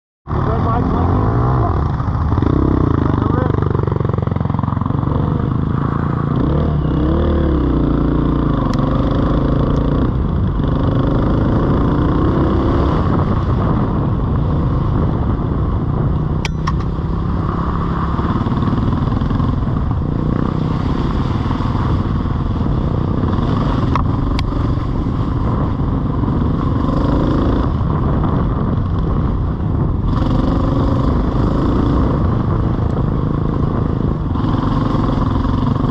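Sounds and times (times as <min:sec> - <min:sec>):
off-road vehicle engine revving: 0:00.3 - 0:15.5, 0:30.0 - 0:35.9
sharp clicks: 0:16.4 - 0:17.0.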